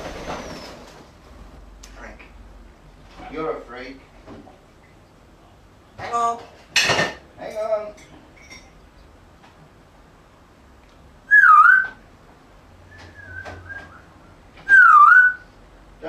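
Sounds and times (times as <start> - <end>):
parrot whistling: 11.3 - 12.0, 12.9 - 15.5.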